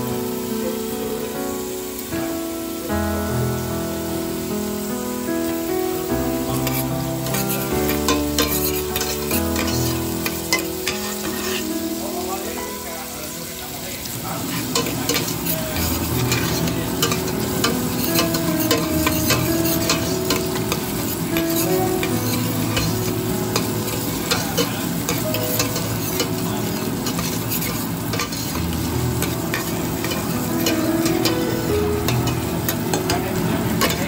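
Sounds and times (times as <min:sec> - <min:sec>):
shallots and garlic sizzling: 0:00.0 - 0:34.0
metal spoon scraping pot: 0:06.7 - 0:11.6, 0:14.7 - 0:26.4, 0:27.0 - 0:31.4.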